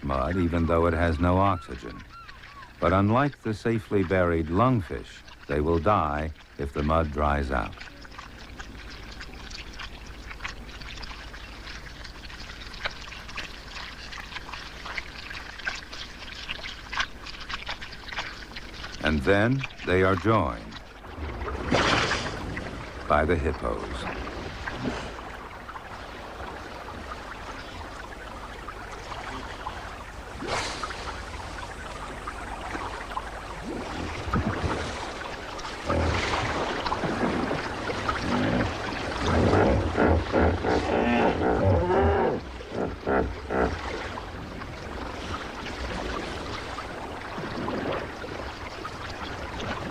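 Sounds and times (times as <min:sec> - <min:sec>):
sloshing and splashing in mud: 0:00.0 - 0:49.9
low grunt call: 0:39.3 - 0:43.8.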